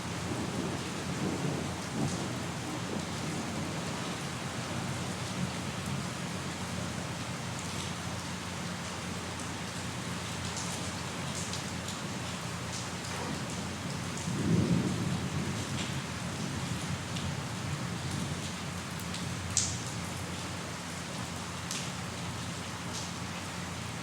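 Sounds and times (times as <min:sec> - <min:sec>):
low thunder rumble: 0:00.0 - 0:05.1, 0:13.2 - 0:18.4
steady rain: 0:00.0 - 0:24.0.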